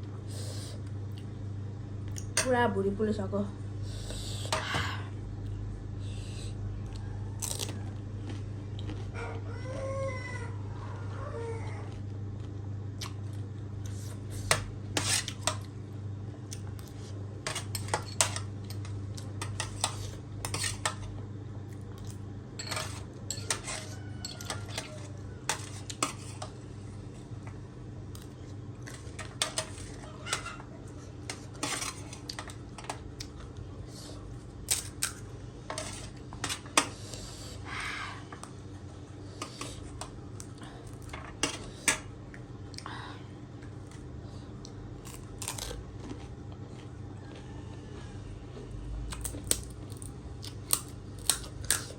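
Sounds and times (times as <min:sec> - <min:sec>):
steady low hum: 0:00.0 - 0:51.9
cutlery clinking on a dish: 0:22.6 - 0:24.9.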